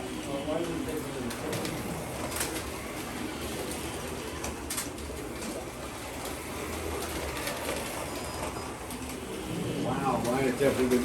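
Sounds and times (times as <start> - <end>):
slot cars whirring on track: 0.0 - 11.0.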